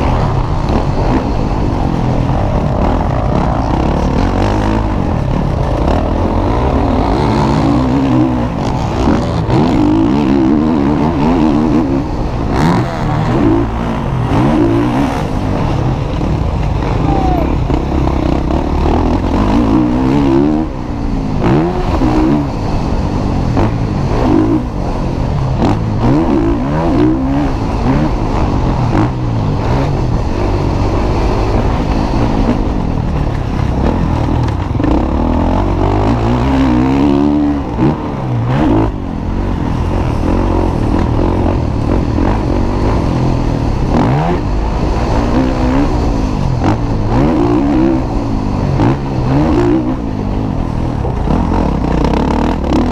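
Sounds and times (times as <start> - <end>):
motocross bike engines revving: 0.0 - 52.9.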